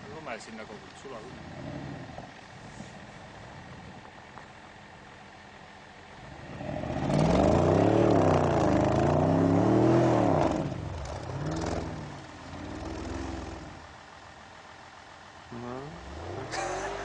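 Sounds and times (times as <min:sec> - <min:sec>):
car engine revving: 0:06.2 - 0:17.0.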